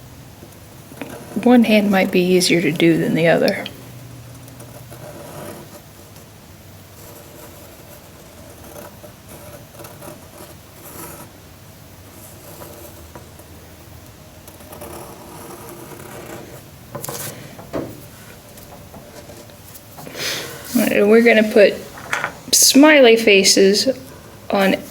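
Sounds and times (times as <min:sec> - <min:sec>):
pen scratching on paper: 0:04.6 - 0:05.8, 0:07.0 - 0:11.3, 0:12.2 - 0:13.5, 0:14.5 - 0:17.4
short knocks: 0:16.9 - 0:19.2.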